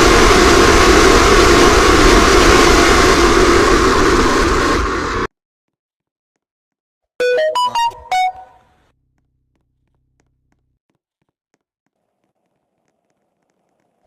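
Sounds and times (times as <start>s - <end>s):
short pitched beeps melody: 7.2s - 8.6s.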